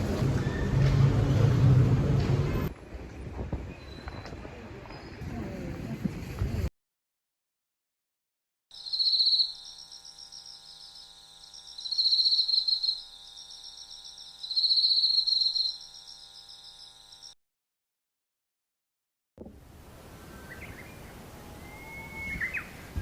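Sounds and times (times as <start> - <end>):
insect chirping trill: 8.7 - 17.4.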